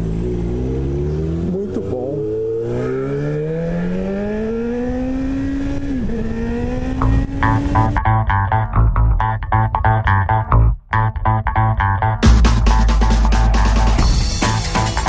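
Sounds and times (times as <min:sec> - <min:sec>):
guitar and bass music: 0:00.0 - 0:04.0, 0:05.0 - 0:15.0
motorcycle engine accelerating: 0:00.0 - 0:08.3.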